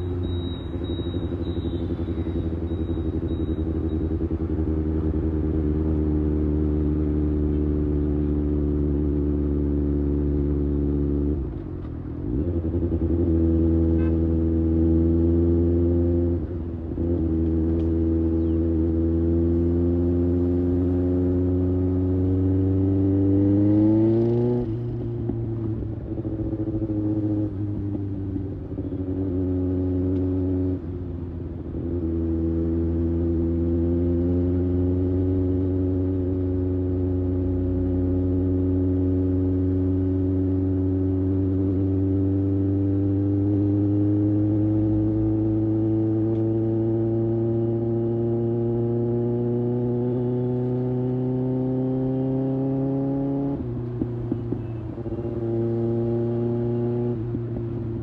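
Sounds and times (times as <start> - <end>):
motorcycle engine revving: 12.3 - 58.0.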